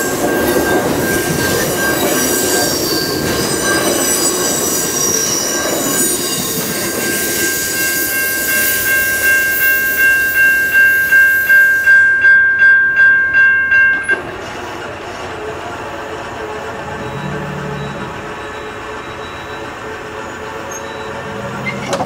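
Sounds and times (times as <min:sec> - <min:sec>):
railcar wheels on rails: 0:00.0 - 0:22.0
level crossing bell ringing: 0:06.7 - 0:14.2.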